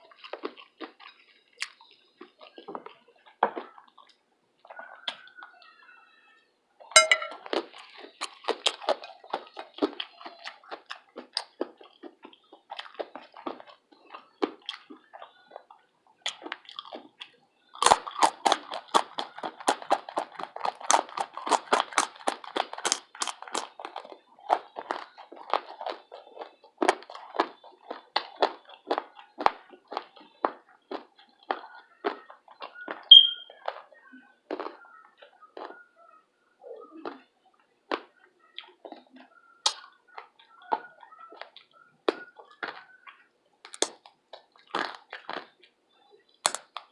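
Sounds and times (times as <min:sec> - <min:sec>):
crunchy chewing: 0:00.0 - 0:05.8, 0:06.9 - 0:46.9
wet mouth clicks: 0:39.6 - 0:40.0, 0:41.4 - 0:45.4, 0:46.4 - 0:46.9.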